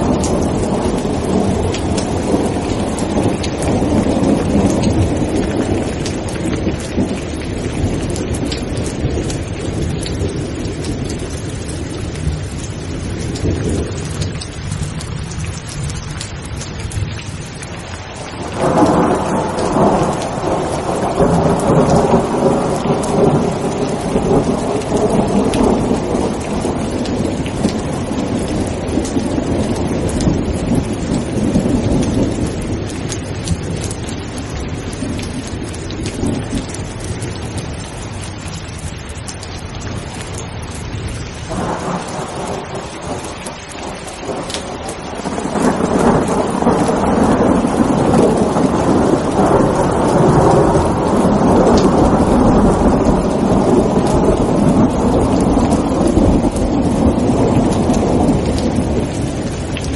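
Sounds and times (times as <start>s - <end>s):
loud thunderclap: 0.0s - 11.4s, 18.3s - 37.6s, 41.5s - 59.9s
heavy rain: 0.0s - 59.9s
thunder rumbling: 0.0s - 59.9s.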